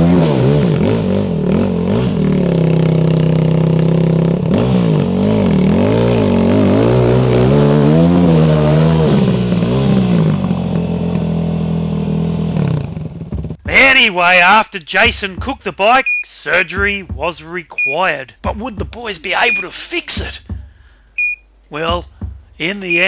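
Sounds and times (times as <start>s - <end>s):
dirt bike engine revving: 0.0s - 13.9s.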